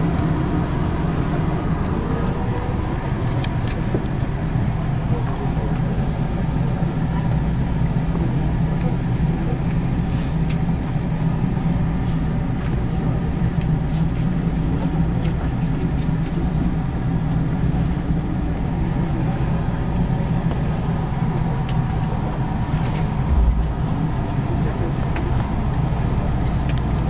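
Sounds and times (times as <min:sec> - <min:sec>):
train cabin equipment hum: 0:00.0 - 0:09.5, 0:16.9 - 0:26.7.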